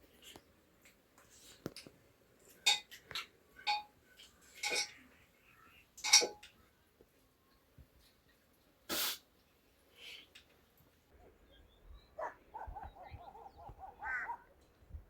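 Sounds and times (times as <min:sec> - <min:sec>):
metal dishes clinking and scraping: 0:02.5 - 0:05.0, 0:06.0 - 0:06.6.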